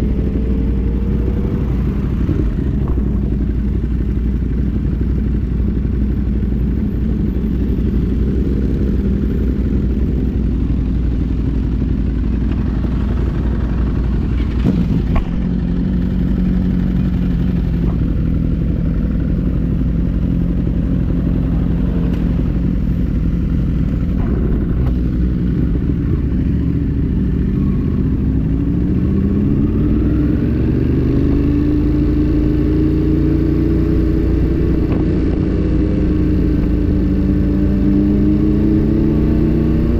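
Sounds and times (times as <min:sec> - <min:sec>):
wind rumble on microphone: 0:00.0 - 0:03.8, 0:20.6 - 0:32.7
motorcycle engine running: 0:00.0 - 0:39.9.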